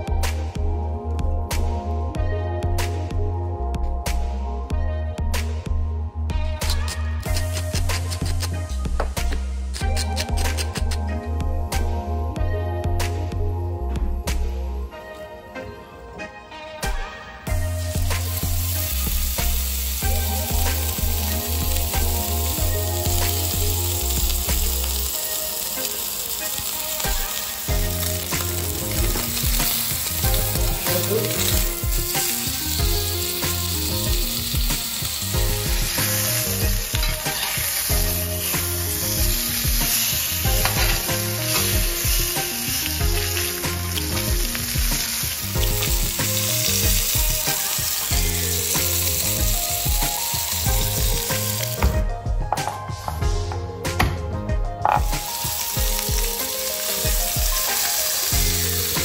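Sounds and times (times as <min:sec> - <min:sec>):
background music: 0:00.0 - 0:59.0
steak sizzling in a pan: 0:17.5 - 0:51.9, 0:54.8 - 0:59.0.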